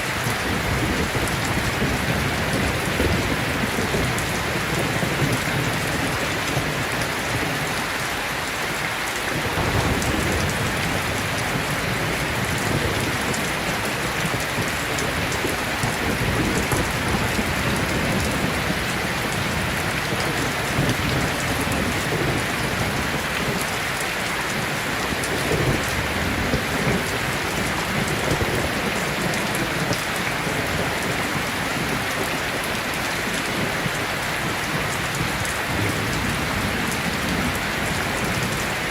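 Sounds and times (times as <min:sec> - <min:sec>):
heavy rain pouring: 0:00.0 - 0:38.9
rolling thunder: 0:00.3 - 0:07.8, 0:09.4 - 0:23.7, 0:33.5 - 0:38.9.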